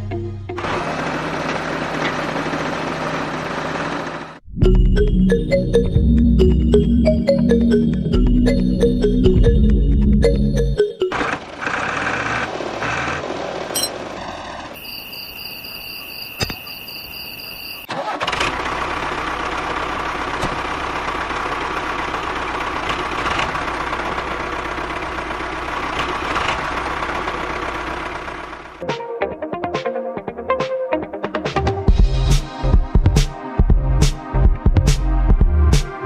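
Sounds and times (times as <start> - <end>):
small tractor motor running: 0.5 - 4.4, 11.0 - 15.3, 17.8 - 28.8.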